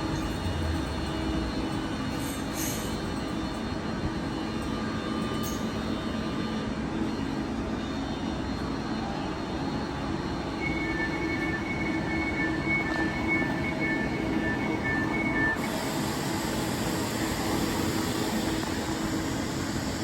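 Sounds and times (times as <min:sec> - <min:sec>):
train humming and rumbling: 0:00.0 - 0:20.0
high two-pitch beeping: 0:10.6 - 0:15.6.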